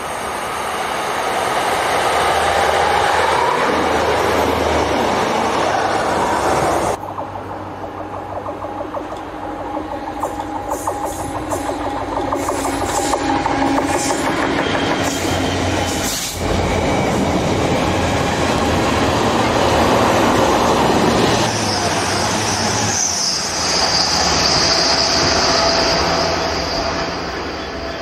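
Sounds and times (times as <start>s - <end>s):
freight train rumbling: 0.0s - 28.0s
high steady squeal: 8.1s - 19.8s, 21.2s - 28.0s.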